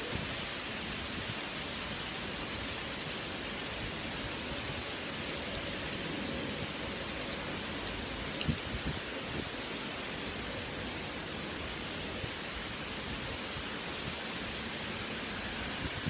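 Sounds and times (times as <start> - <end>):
strong wind buffeting microphone: 8.1 - 9.7, 15.1 - 16.0.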